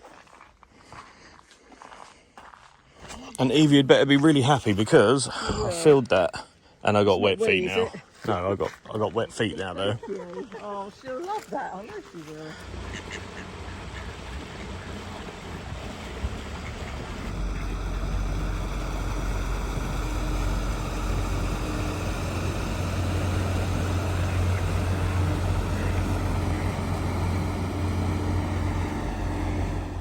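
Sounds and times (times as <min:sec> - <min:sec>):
engine running with deep rumble: 0:12.2 - 0:30.0
noisy hiss: 0:12.7 - 0:30.0.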